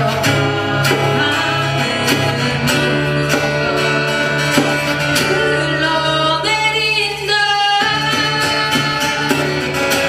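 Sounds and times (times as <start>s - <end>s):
acoustic guitars strumming: 0.0s - 10.0s.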